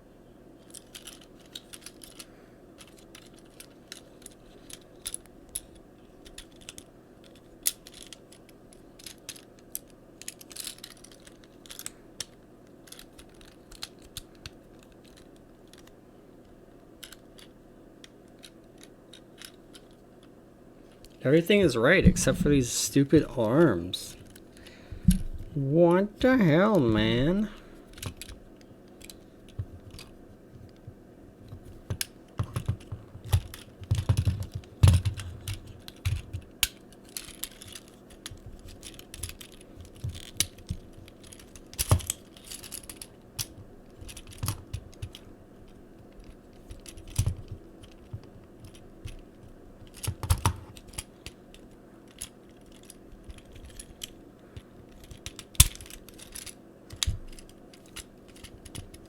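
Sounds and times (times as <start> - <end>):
plastic toy parts clicking: 0.6 - 15.9, 17.0 - 20.0, 27.9 - 28.4, 31.8 - 54.2, 54.9 - 59.0.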